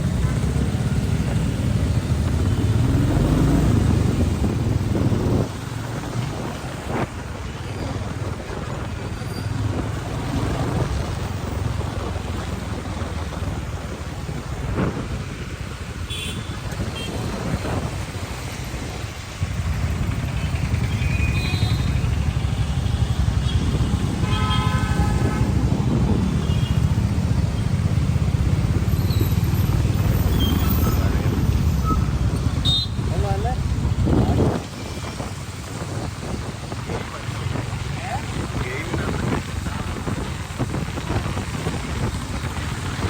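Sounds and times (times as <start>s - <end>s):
wind and road noise rumble: 0.0s - 43.0s
vehicle horns: 16.0s - 17.5s, 20.3s - 27.0s, 30.2s - 33.2s.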